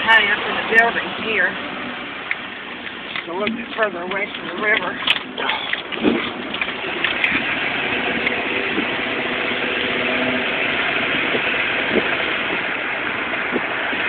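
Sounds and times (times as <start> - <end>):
faint engine hum: 0.0 - 14.0
road noise inside moving car: 0.0 - 14.0.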